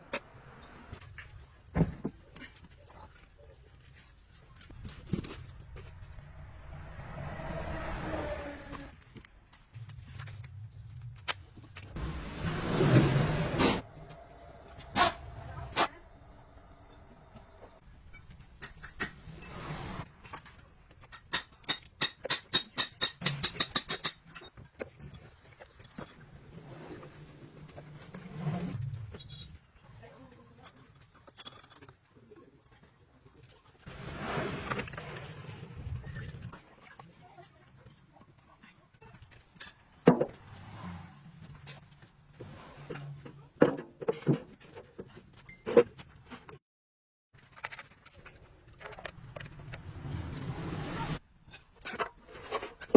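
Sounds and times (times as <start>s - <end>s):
metal tools clinking: 30.6s - 32.1s.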